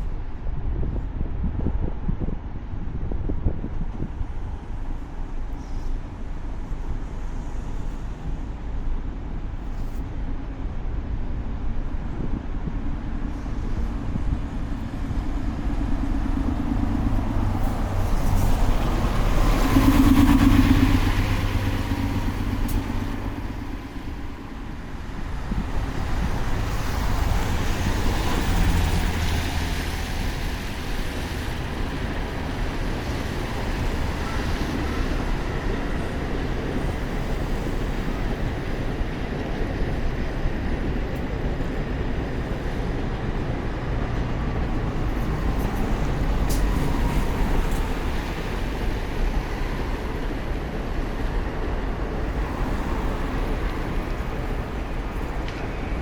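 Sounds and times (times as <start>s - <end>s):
wind and wet tyres hiss: 0.0s - 56.0s
motor vehicles passing: 14.9s - 24.6s.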